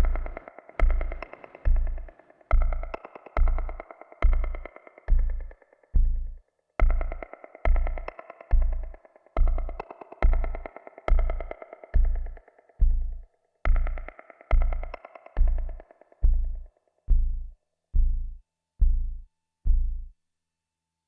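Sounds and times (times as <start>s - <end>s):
low bass synth pulses: 0.0s - 20.1s.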